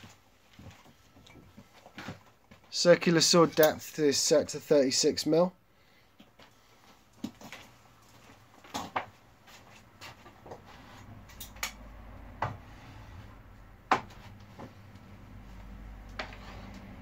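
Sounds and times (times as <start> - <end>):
knocks and clicks of handling wood: 7.2 - 9.2, 11.3 - 12.8, 13.8 - 14.8.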